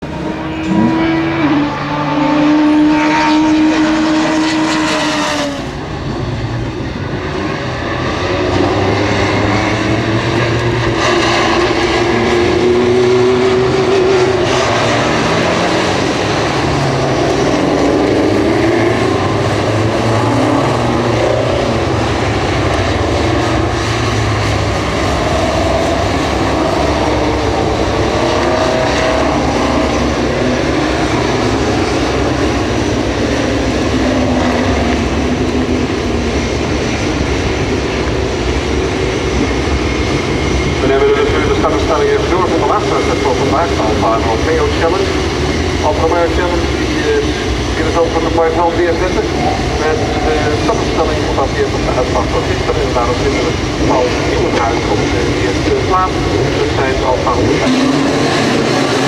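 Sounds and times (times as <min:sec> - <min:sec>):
race car engines at high revs: 0:00.0 - 0:59.0.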